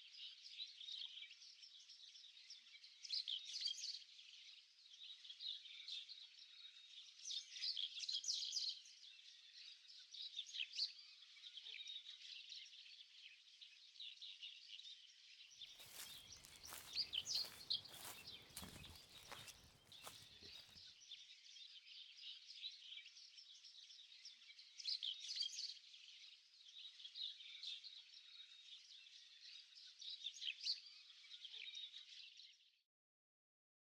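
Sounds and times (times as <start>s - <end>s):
chorus of high chirps: 15.8s - 20.7s.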